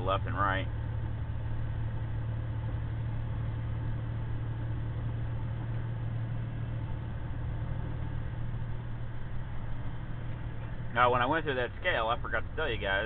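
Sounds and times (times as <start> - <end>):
diesel engine drone: 0.0 - 13.0
road noise: 0.0 - 13.0.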